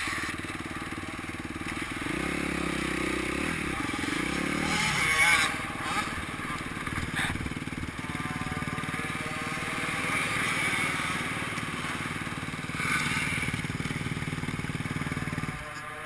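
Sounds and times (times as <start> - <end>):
motocross bike engine revving: 0.0 - 16.0.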